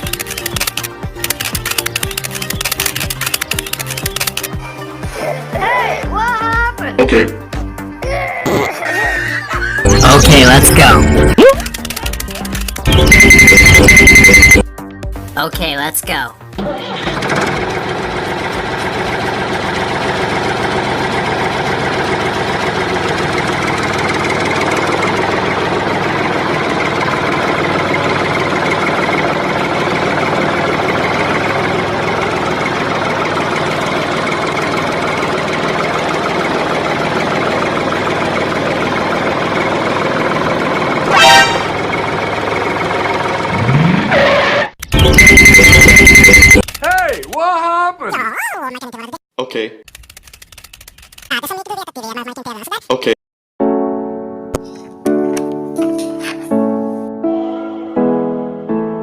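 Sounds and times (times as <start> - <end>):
tractor engine running: 0.0 - 4.7, 9.9 - 14.6, 16.5 - 47.4, 49.9 - 51.8
horn honk: 41.0 - 42.0.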